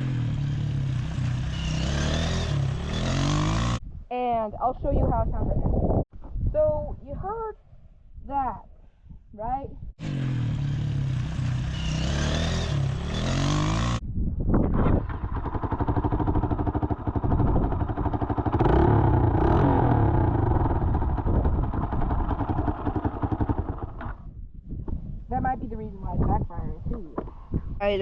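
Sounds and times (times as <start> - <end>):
dirt bike engine revving: 0.0 - 3.8, 10.0 - 14.0, 14.8 - 24.2
engine backfiring: 0.0 - 3.8, 10.0 - 14.0, 14.7 - 24.2.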